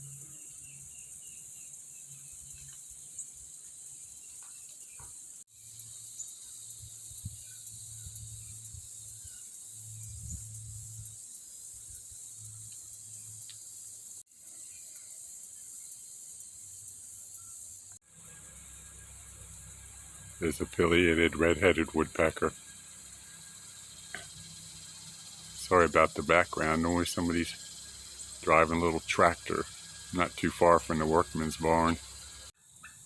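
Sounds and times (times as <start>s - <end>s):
insect chorus: 0.0s - 33.0s
small tractor engine drone: 18.2s - 32.5s.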